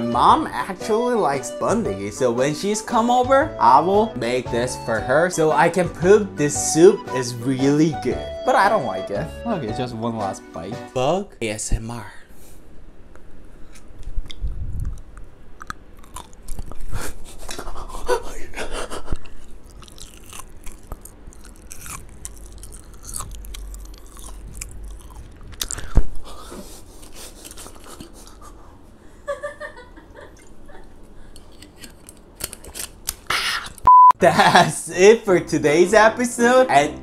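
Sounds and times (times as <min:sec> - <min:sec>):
wet chewing and biting: 0:13.7 - 0:17.6, 0:19.1 - 0:26.4, 0:31.3 - 0:33.9.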